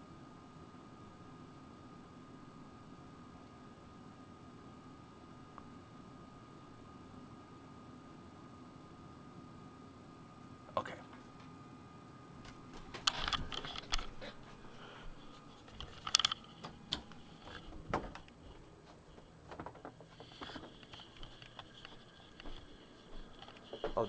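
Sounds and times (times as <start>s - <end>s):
sharp clicks and knocks: 15.7s - 22.6s.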